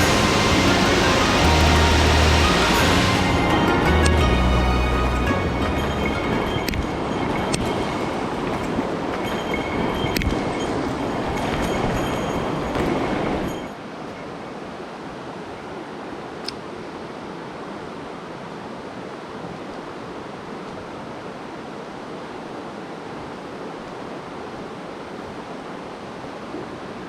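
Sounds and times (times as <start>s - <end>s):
mountain stream rushing: 0.0s - 27.0s
small click: 16.4s - 16.6s.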